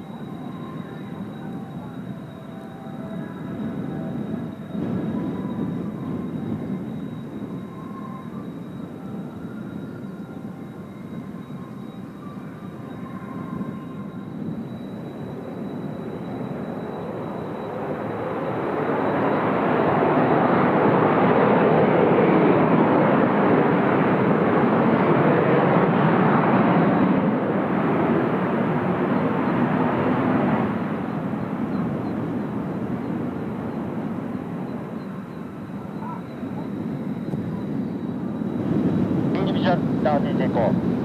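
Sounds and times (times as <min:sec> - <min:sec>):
jet aircraft flying past: 0:14.7 - 0:41.0.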